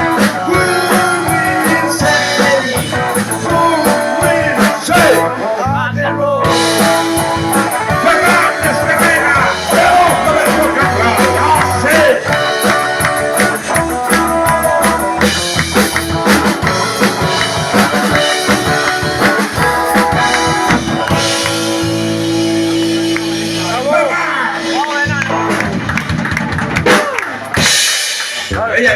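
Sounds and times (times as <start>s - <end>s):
drum kit: 0.0s - 5.4s, 6.4s - 28.9s
person singing: 0.0s - 15.3s
bass guitar: 0.0s - 28.9s
electric guitar: 0.0s - 28.9s.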